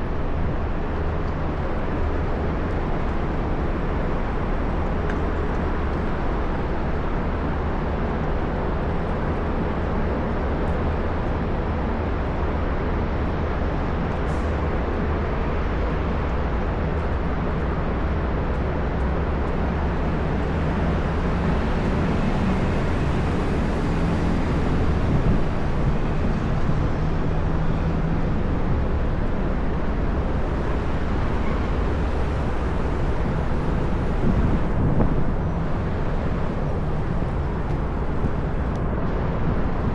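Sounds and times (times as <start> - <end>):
traffic rumble: 0.0 - 39.9.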